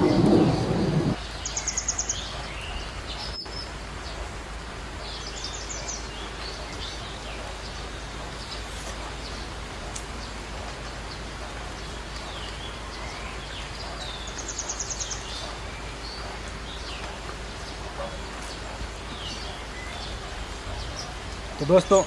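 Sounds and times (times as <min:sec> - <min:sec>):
outdoor background hiss: 0:00.0 - 0:22.0
wild birds calling: 0:00.0 - 0:22.0.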